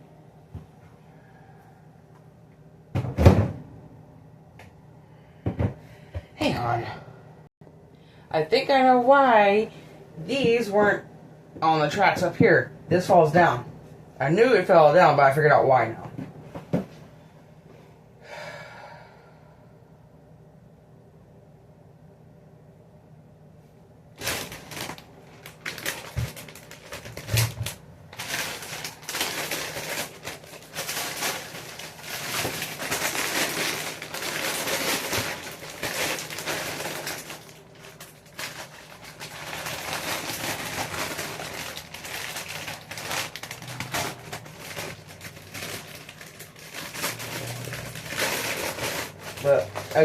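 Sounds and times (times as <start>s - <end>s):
plastic packaging crinkling: 24.2s - 50.0s.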